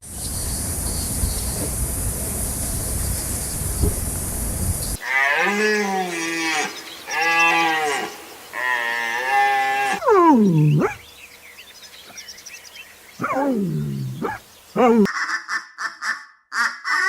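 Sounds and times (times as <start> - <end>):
cow mooing: 5.0 - 11.0.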